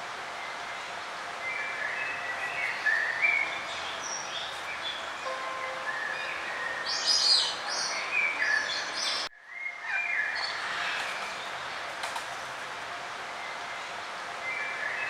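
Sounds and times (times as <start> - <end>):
steady outdoor hiss: 0.0 - 15.0
songbirds chirping and singing: 0.4 - 11.6.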